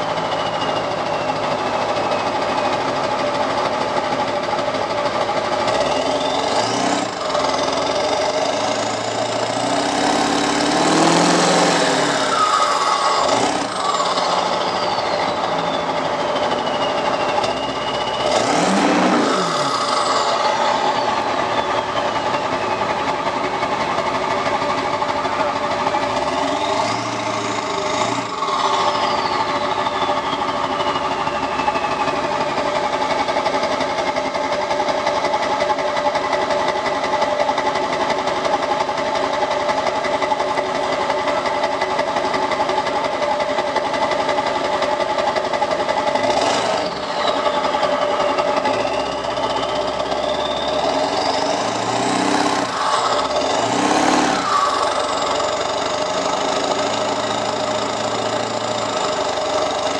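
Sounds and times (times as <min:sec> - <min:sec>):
diesel engine idling: 0:00.0 - 0:59.9
engine revving: 0:05.5 - 0:38.2, 0:38.8 - 0:59.9
turbo whistle: 0:11.7 - 0:23.4, 0:26.0 - 0:32.9, 0:46.4 - 0:56.0.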